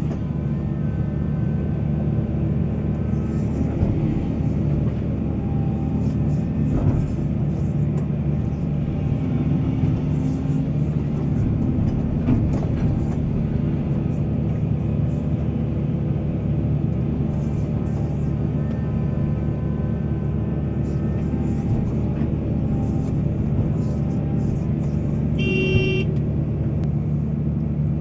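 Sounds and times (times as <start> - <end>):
excavator engine running: 0.0 - 28.0
excavator knock: 3.7 - 5.6, 6.5 - 14.6, 21.5 - 26.3.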